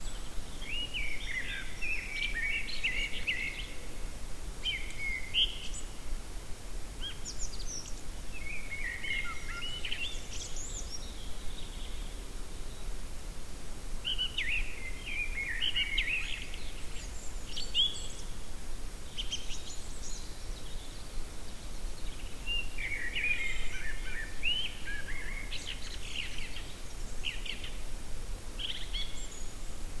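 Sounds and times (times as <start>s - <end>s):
songbirds singing: 0.0s - 6.0s, 7.0s - 13.0s, 14.0s - 27.9s, 28.5s - 30.0s.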